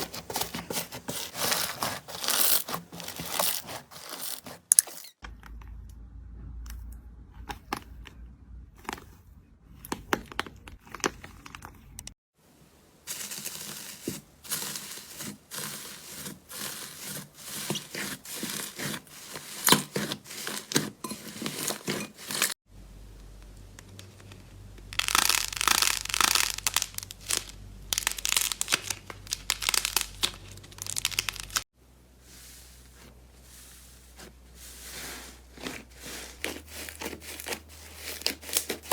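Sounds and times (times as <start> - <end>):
slime crackling and popping: 25.0 - 31.6.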